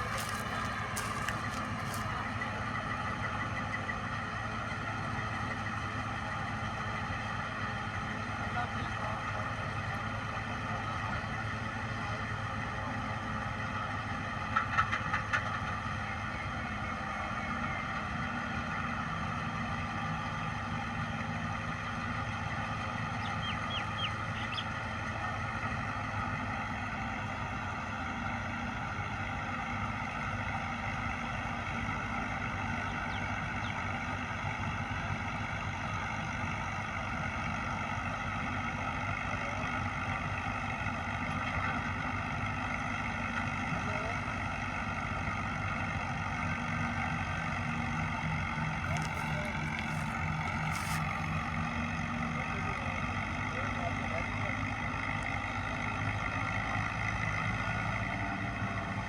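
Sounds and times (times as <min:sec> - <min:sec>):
tractor engine running: 0:00.0 - 0:04.6, 0:48.4 - 0:51.8.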